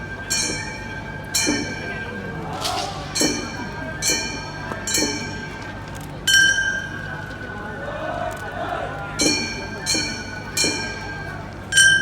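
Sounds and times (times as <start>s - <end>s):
held high flute note: 2.5s - 5.0s
hand gongs struck: 2.6s - 5.3s.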